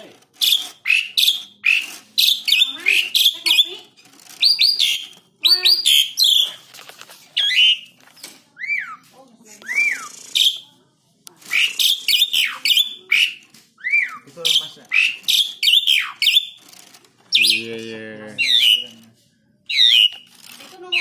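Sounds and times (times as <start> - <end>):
starling singing whistles: 0.4 - 3.6, 4.4 - 6.6, 7.4 - 7.9, 9.6 - 10.6, 11.5 - 16.6, 17.3 - 17.6, 18.4 - 19.0, 19.7 - 21.0.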